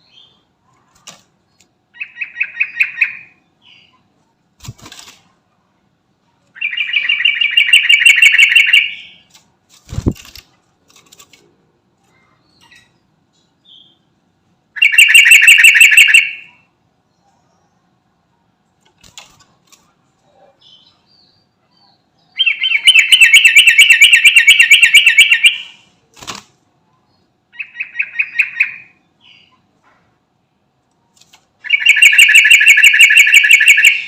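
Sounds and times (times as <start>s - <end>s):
bird singing repeated notes: 1.9s - 4.0s, 6.6s - 9.3s, 14.8s - 16.7s, 20.6s - 25.9s, 27.5s - 29.6s, 31.6s - 34.0s.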